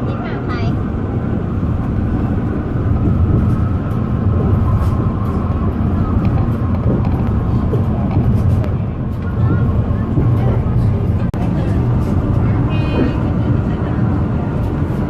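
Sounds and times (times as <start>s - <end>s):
train carriage rumbling on track: 0.0s - 15.0s.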